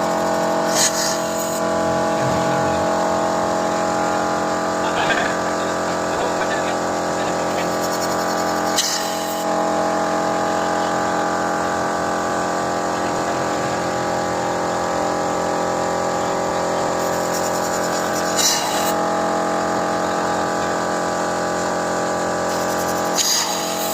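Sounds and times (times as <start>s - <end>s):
car engine idling: 1.6s - 5.0s.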